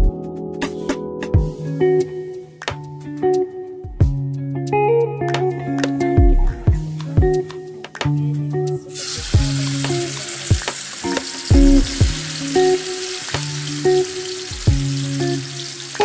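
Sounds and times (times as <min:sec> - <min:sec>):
plucked guitar music: 0:00.0 - 0:16.0
spice paste sizzling in oil: 0:08.9 - 0:16.0.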